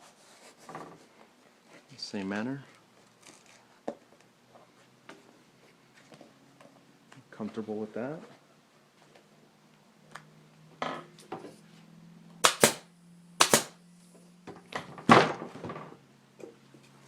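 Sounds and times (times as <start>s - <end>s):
staple gun firing: 12.4s - 12.8s, 13.4s - 13.8s.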